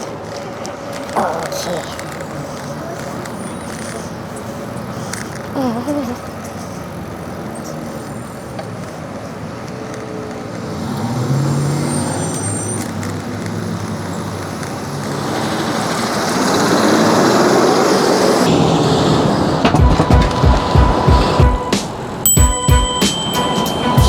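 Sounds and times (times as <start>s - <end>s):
passing vehicle engine hum: 0.0s - 22.3s
rush of traffic: 0.0s - 24.0s.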